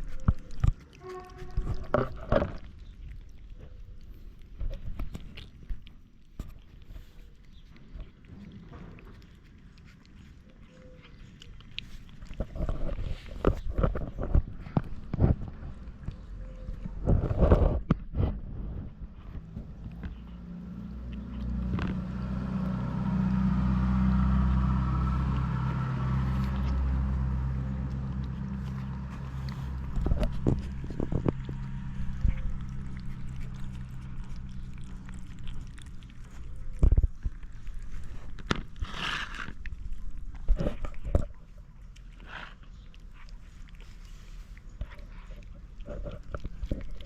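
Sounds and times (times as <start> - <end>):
cats chewing: 0.0 - 47.0
vehicle engine running: 18.6 - 39.5.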